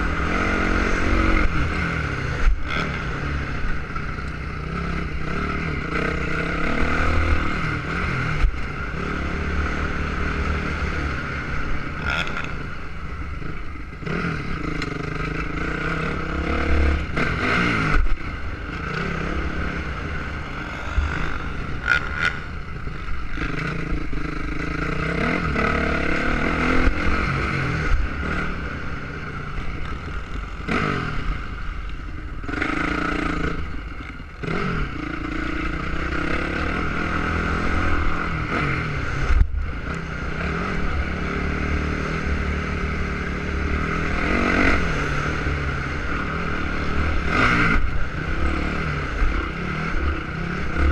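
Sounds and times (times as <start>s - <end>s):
dirt bike engine revving: 0.0s - 31.8s, 34.4s - 50.9s
steady low rumble: 17.9s - 24.8s.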